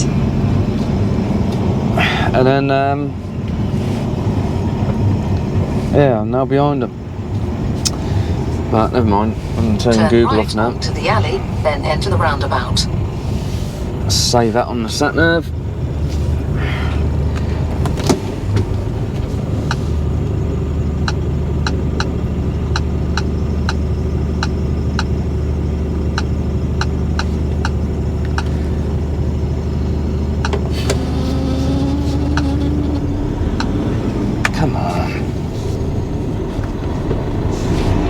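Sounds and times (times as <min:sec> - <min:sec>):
diesel lorry engine running: 0:00.0 - 0:38.0
short rising whine: 0:27.7 - 0:38.0.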